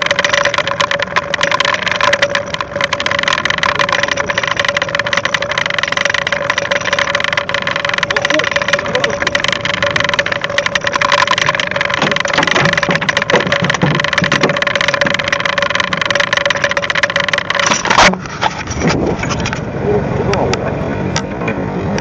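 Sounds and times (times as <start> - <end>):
boat engine humming: 0.0 - 22.0
rushing wind: 17.6 - 22.0.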